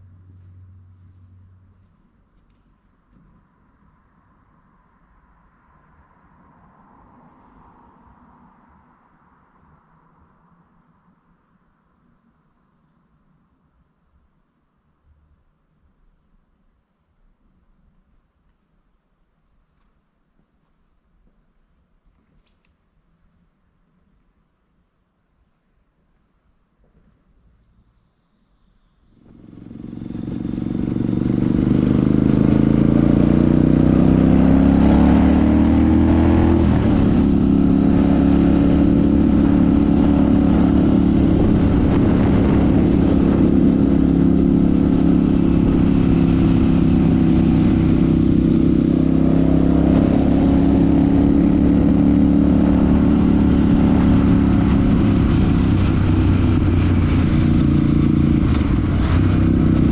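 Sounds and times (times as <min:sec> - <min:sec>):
motorcycle engine accelerating: 0:29.2 - 0:59.9.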